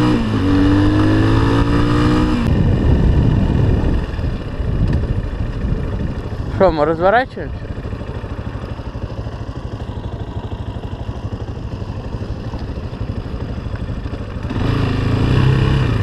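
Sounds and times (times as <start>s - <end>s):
vehicle engine puttering: 2.4s - 16.0s.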